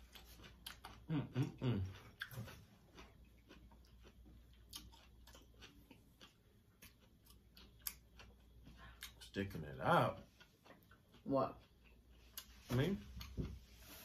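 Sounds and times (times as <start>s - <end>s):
chewing: 0.0s - 14.0s.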